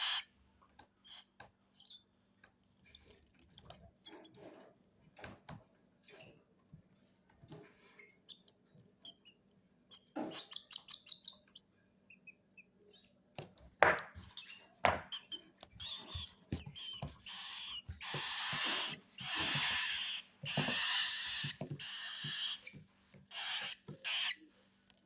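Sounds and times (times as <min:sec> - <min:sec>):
baby birds begging calls: 0:00.0 - 0:00.2, 0:15.8 - 0:22.6, 0:23.3 - 0:24.4.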